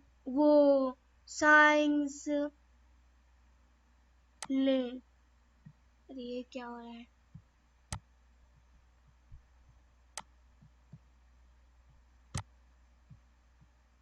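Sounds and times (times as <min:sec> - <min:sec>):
steady low hum: 0:00.0 - 0:14.0
sharp clicks: 0:07.4 - 0:08.1, 0:10.2 - 0:11.1.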